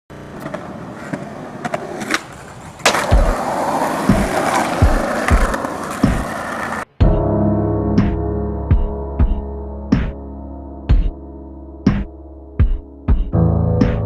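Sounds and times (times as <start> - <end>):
rough rolling noise: 0.1 - 6.9.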